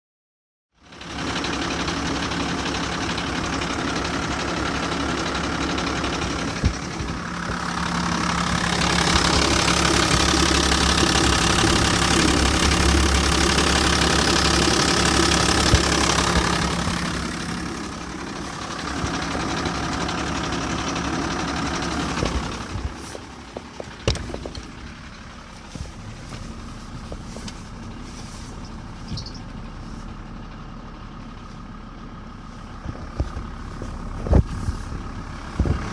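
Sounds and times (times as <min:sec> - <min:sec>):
diesel engine running: 0:00.8 - 0:35.9
gearbox noise: 0:01.6 - 0:29.7
sharp clicks and knocks: 0:04.4 - 0:25.0.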